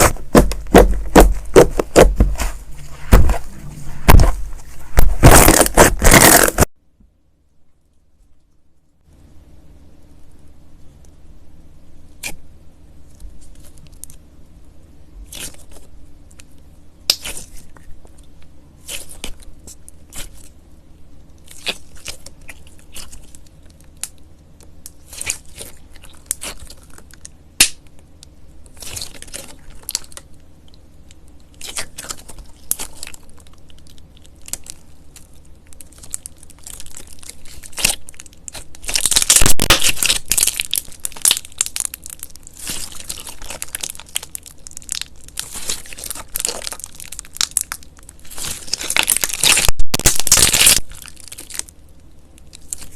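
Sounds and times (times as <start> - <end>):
slime crackling: 0.0 - 6.7, 24.9 - 27.8, 28.7 - 30.3, 31.5 - 51.8.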